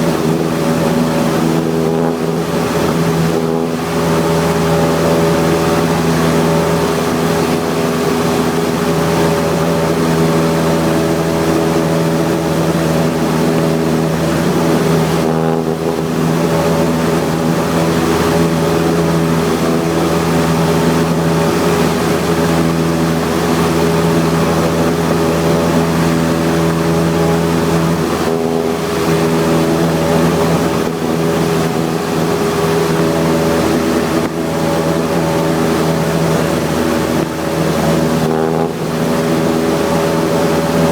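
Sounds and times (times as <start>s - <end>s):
aircraft engine and propeller drone: 0.0s - 40.9s.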